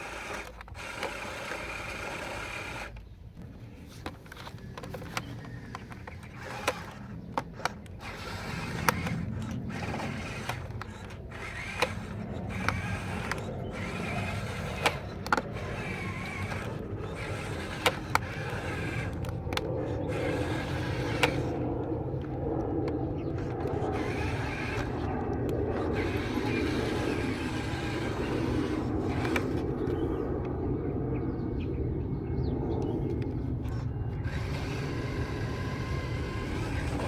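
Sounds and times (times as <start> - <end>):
small electric motors whirring: 0.0 - 31.3, 32.7 - 37.0
sharp clicks: 4.0 - 30.6.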